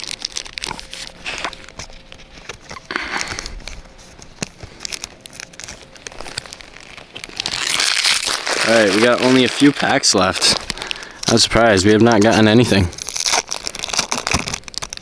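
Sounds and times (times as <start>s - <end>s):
foil wrappers crinkling: 0.0s - 15.0s.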